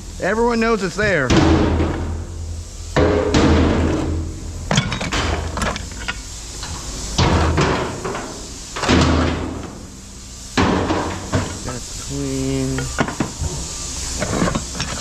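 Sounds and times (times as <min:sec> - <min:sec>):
steady low hum: 0:00.0 - 0:15.0
scrap metal clanking: 0:12.8 - 0:15.0.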